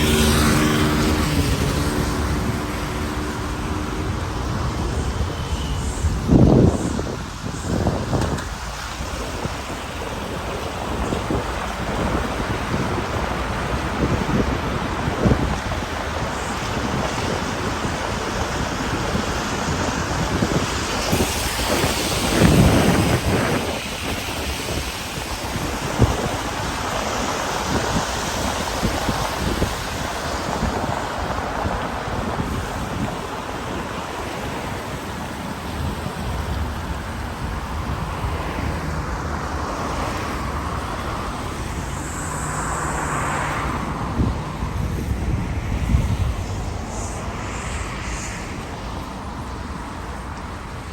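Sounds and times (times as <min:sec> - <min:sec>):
passing traffic: 0:00.0 - 0:50.9
rain: 0:00.0 - 0:50.9
wind buffeting microphone: 0:00.0 - 0:50.9.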